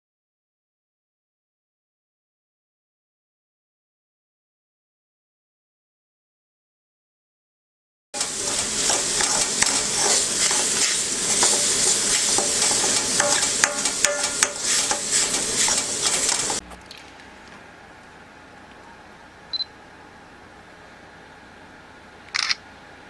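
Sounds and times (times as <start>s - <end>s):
food sizzling in a pan: 8.2s - 16.6s
utensil clinking and scraping: 8.2s - 16.6s.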